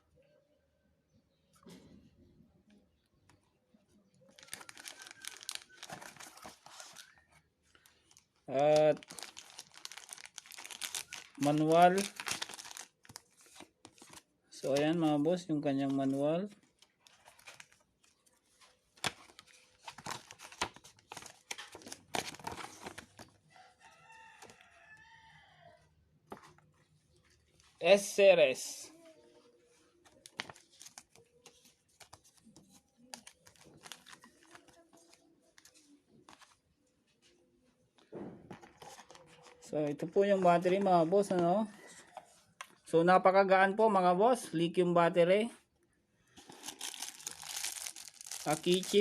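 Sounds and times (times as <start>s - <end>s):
paper and packaging rustling: 4.3s - 15.2s, 15.8s - 23.4s, 29.3s - 37.4s, 38.0s - 42.8s, 46.4s - 49.0s
rooster crowing: 23.5s - 25.8s.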